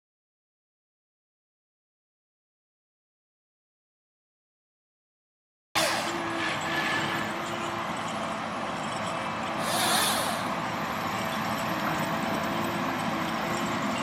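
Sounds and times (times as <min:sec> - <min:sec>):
forestry harvester running: 0:05.8 - 0:14.0
hiss burst: 0:09.6 - 0:10.6.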